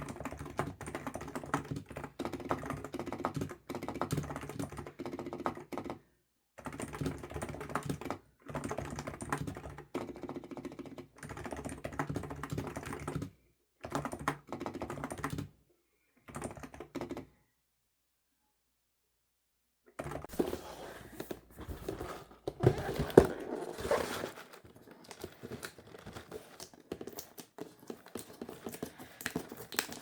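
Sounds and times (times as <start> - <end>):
computer keyboard typing: 0.0 - 6.0, 6.6 - 15.5, 16.3 - 17.3.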